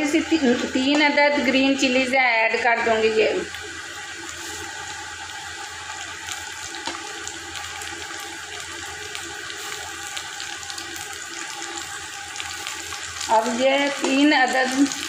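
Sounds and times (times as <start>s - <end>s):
onions sizzling in hot oil: 0.0s - 15.0s
oil crackling: 3.4s - 15.0s.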